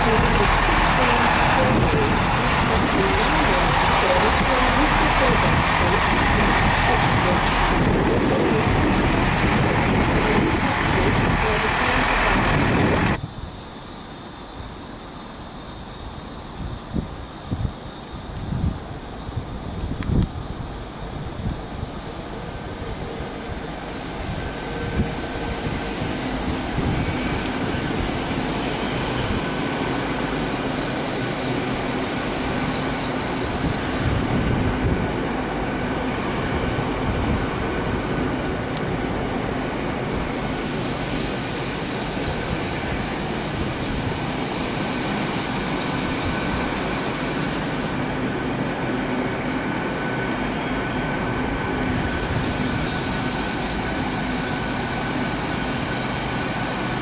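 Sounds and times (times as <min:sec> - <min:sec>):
train wheels rumbling on rail: 0:00.0 - 0:57.0
hiss: 0:40.2 - 0:48.3, 0:52.0 - 0:57.0.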